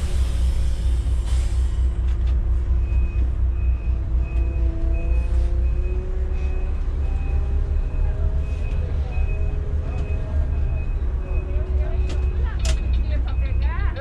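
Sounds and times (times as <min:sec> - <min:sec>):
air brake hiss: 0:00.0 - 0:02.0
diesel engine rumbling: 0:00.0 - 0:14.0
reversing beeper: 0:02.7 - 0:14.0.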